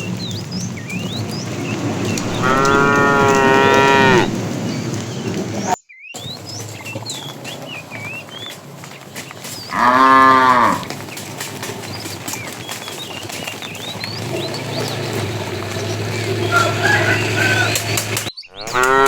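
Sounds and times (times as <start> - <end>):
small birds chirping: 0.0 - 19.0
cow mooing: 2.1 - 4.4, 9.7 - 10.9, 18.6 - 19.0.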